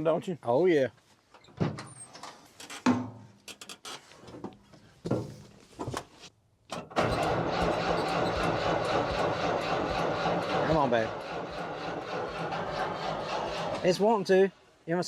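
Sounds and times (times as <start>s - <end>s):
knocks and clatters: 6.7s - 14.0s
truck engine cranking: 6.8s - 14.3s.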